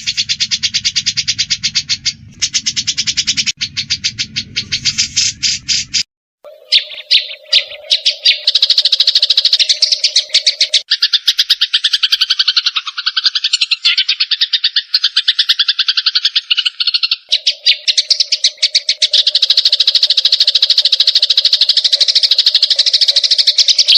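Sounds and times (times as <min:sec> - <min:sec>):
low steady hum: 0:00.0 - 0:06.0
rapid chattering bird calls: 0:00.0 - 0:23.9.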